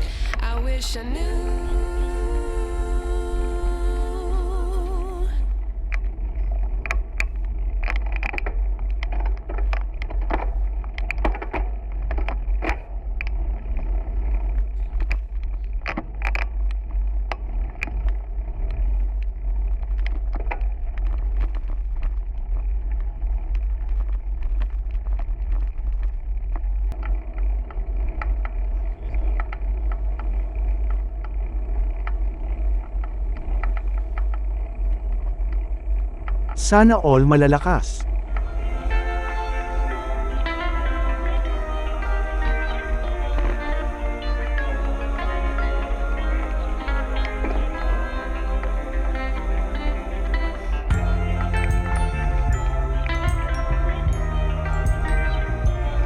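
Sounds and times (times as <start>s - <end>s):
wind rumble on microphone: 0.0s - 36.9s
road noise: 34.0s - 56.0s.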